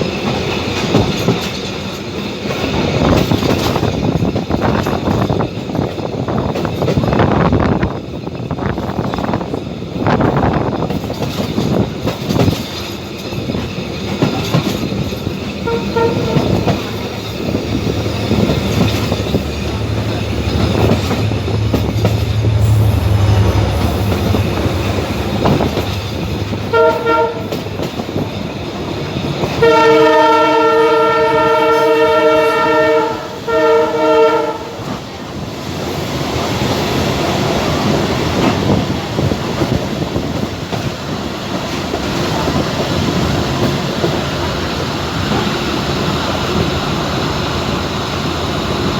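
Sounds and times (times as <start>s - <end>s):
train wheels rumbling on rails: 0.0s - 48.9s
multi-tone train horn: 15.6s - 17.0s, 19.7s - 27.9s, 29.4s - 35.1s.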